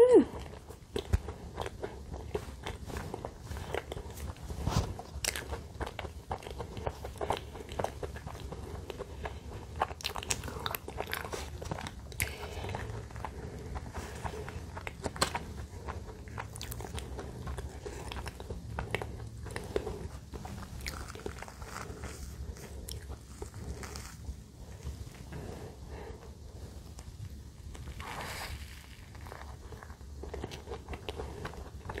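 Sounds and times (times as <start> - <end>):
bun pressed into cream: 0.0 - 32.0
chewing with wet mouth clicks: 0.4 - 24.9.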